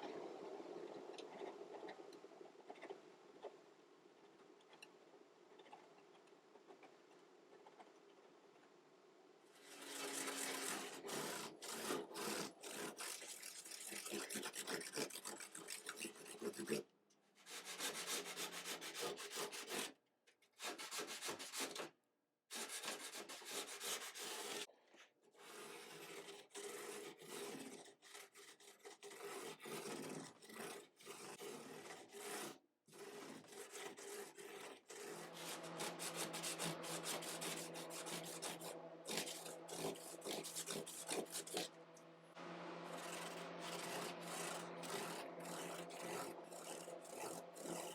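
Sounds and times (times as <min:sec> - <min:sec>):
hand sanding wood: 0:09.6 - 0:16.8, 0:17.5 - 0:19.8, 0:29.1 - 0:47.9.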